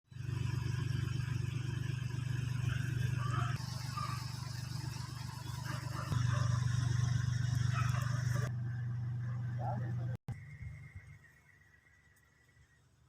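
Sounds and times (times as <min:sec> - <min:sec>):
diesel truck engine idling: 0:00.1 - 0:10.2.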